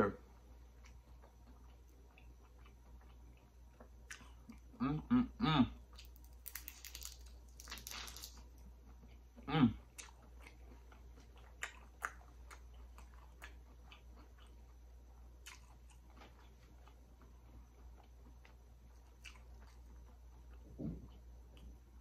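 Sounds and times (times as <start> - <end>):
close-up chewing: 0.7 - 4.7, 9.9 - 14.8, 15.4 - 21.7
person humming: 4.8 - 5.8
crunchy bite into fried food: 6.0 - 8.4.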